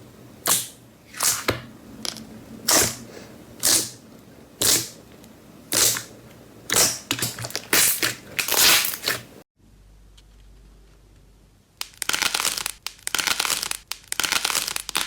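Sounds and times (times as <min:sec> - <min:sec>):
slime squishing and crackling: 0:06.7 - 0:09.3, 0:11.8 - 0:15.0.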